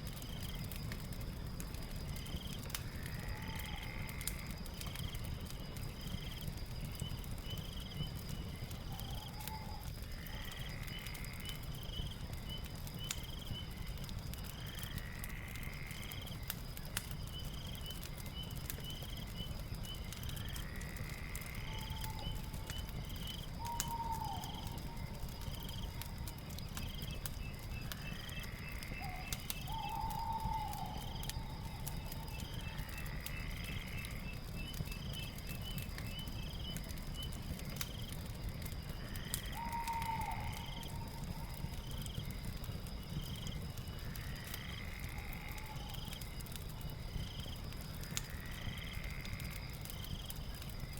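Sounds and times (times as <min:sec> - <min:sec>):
fireplace crackling: 0:00.0 - 0:50.9
insect drone: 0:00.0 - 0:50.9
rising animal call: 0:39.5 - 0:41.2.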